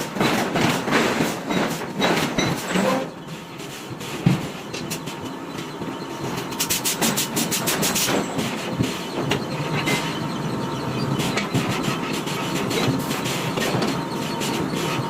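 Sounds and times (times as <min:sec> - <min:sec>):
metallic clanks and knocks: 0:00.1 - 0:03.2.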